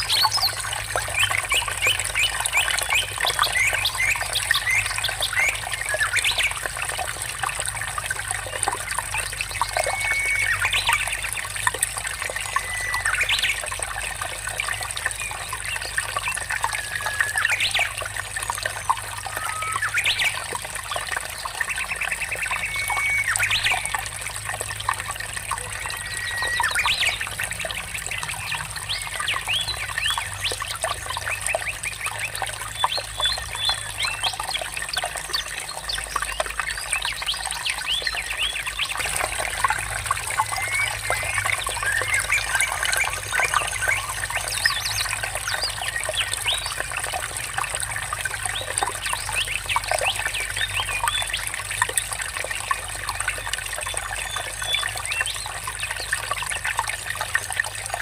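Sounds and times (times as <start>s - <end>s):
water trickling: 0.0s - 58.0s
birds chirping: 25.8s - 46.8s.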